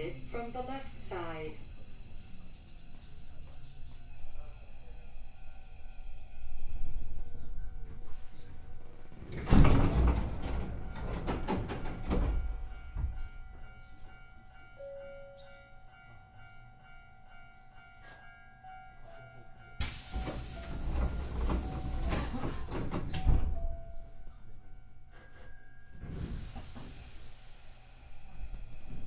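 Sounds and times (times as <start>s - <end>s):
air brake hiss: 19.8s - 22.5s, 26.1s - 28.2s.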